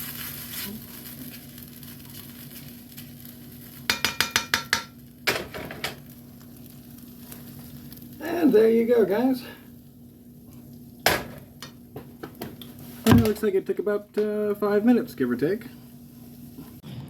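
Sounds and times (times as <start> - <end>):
metal utensil clinking on pan: 3.9 - 6.0.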